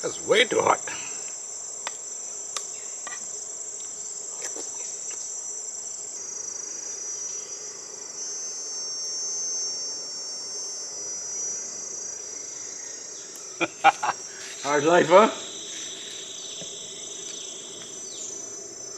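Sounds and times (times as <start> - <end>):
insects chorus shrilling: 0.0 - 18.9.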